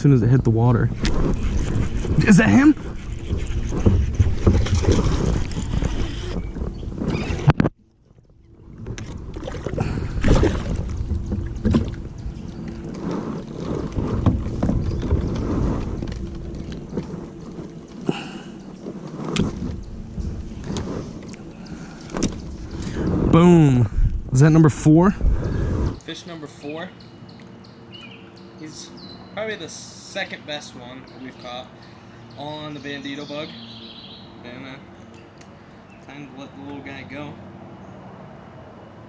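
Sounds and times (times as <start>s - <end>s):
wind buffeting microphone: 0.0s - 7.8s, 8.4s - 26.0s
knocks against a boat: 3.4s - 5.4s, 10.2s - 12.1s, 13.9s - 16.0s.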